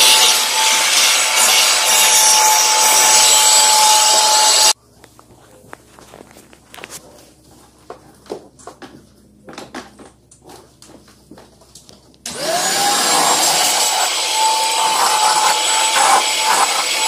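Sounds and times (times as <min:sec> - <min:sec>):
vacuum cleaner running: 0:00.0 - 0:04.8, 0:12.3 - 0:17.0.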